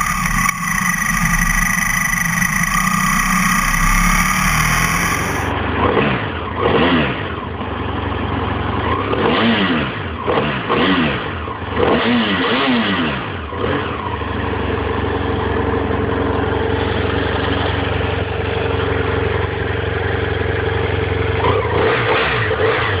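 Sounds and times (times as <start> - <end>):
motorcycle engine idling: 0.0 - 6.6, 7.2 - 9.1, 13.4 - 23.0
motorcycle engine revving: 0.0 - 23.0.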